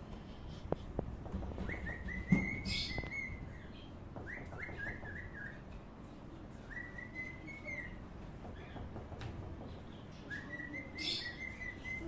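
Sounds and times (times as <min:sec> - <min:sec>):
bird whistling: 0:01.6 - 0:05.6, 0:06.7 - 0:08.0, 0:10.3 - 0:12.0.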